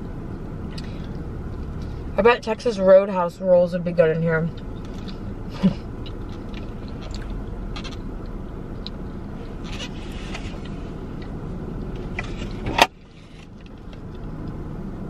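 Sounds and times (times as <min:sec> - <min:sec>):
person chewing bread: 0:05.9 - 0:08.0.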